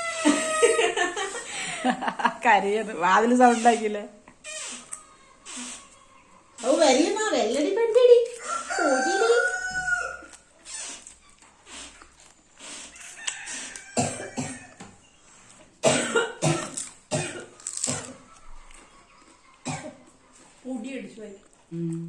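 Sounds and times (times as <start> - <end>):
parrot squawking: 3.3 - 7.1.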